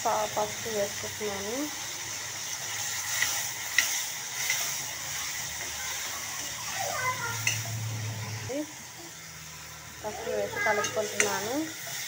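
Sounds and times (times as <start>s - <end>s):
vegetables sizzling in hot oil: 0.0s - 12.0s
steel spoon stirring: 2.7s - 5.4s, 7.0s - 7.9s, 10.3s - 12.0s
spoon clinking against pan: 7.4s - 7.7s, 10.7s - 11.5s.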